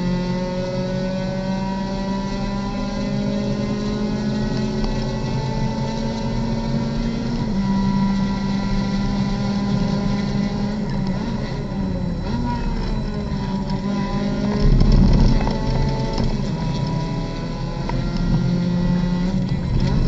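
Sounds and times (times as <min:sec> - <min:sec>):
race car engine at full throttle: 0:00.0 - 0:20.0.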